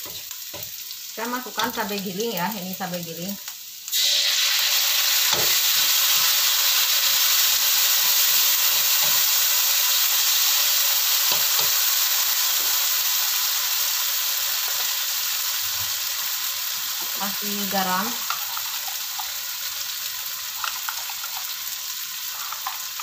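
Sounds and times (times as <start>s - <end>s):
paste sizzling in hot oil: 0.0s - 23.0s
metal spatula scraping a pan: 22.2s - 23.0s.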